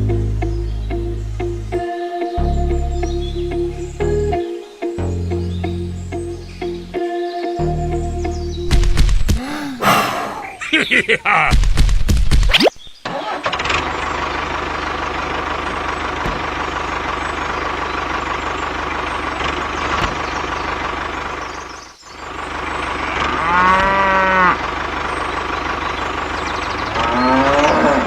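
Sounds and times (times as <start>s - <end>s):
engine running: 13.6s - 23.3s
cow mooing: 23.0s - 24.6s.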